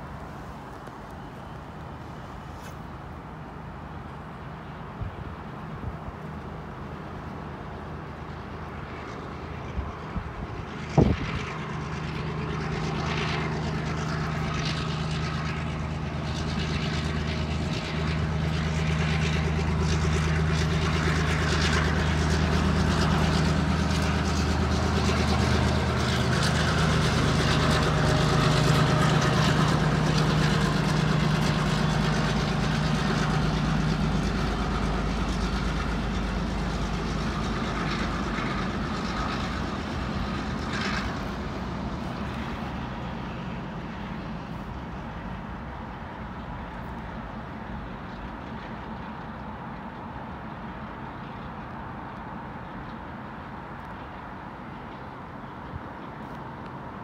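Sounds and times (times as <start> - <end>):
train low hum: 0.0 - 57.0
train rushing noise: 0.0 - 57.0.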